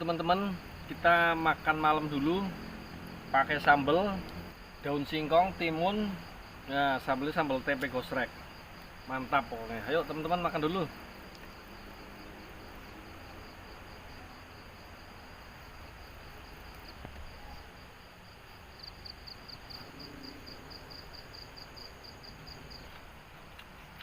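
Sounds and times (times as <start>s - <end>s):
insects high-pitched trill: 0.0s - 24.0s
rapid insect chirps: 0.0s - 24.0s.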